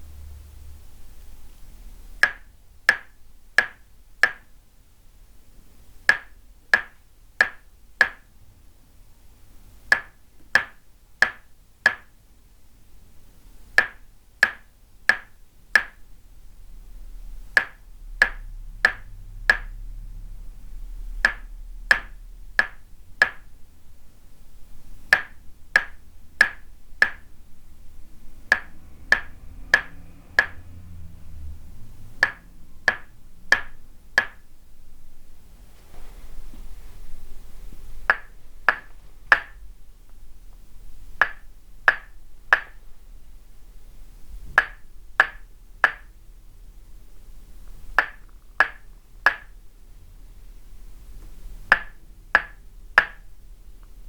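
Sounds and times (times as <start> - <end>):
wooden mallet tapping wooden peg: 2.2 - 4.5, 6.1 - 8.3, 9.9 - 12.2, 13.7 - 16.1, 17.5 - 19.9, 21.2 - 23.5, 25.1 - 27.3, 28.4 - 30.8, 32.2 - 34.5, 38.0 - 39.6, 41.2 - 42.8, 44.5 - 46.1, 48.0 - 49.6, 51.7 - 53.3.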